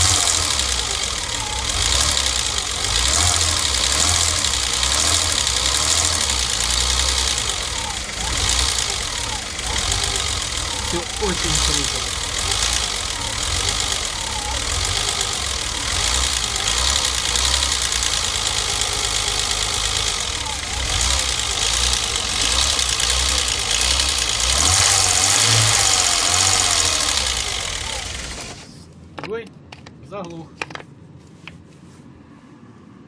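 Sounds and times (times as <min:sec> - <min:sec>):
car engine idling: 0:00.0 - 0:29.1.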